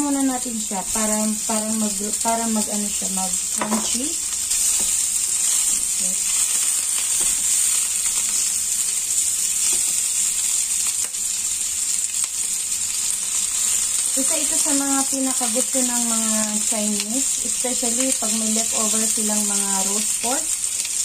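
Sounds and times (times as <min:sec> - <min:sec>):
pork frying sizzle: 0:00.0 - 0:21.0
spatula tapping and scraping: 0:04.6 - 0:05.9.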